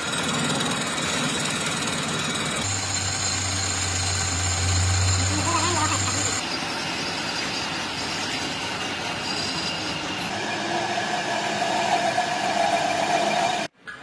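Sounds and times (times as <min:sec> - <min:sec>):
factory machinery high squeal: 0:02.7 - 0:13.7
machinery hum: 0:02.7 - 0:13.7.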